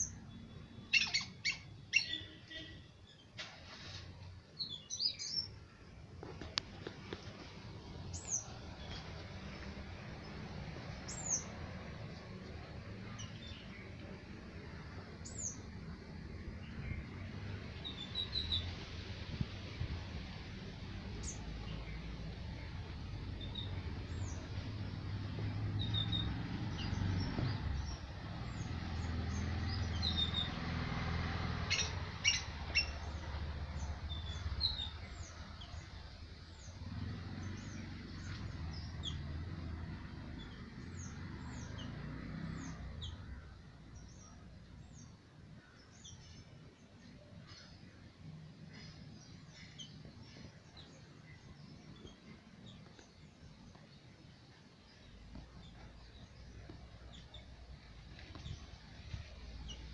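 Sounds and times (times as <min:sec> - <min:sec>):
small birds chirping: 0:00.0 - 0:03.4, 0:04.5 - 0:59.9.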